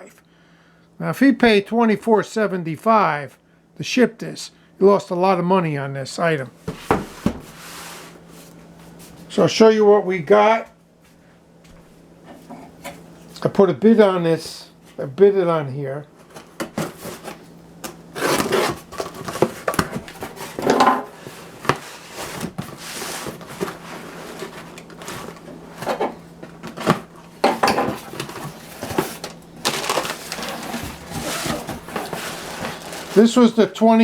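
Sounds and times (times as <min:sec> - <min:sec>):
cardboard packaging rustling: 0:16.2 - 0:33.7.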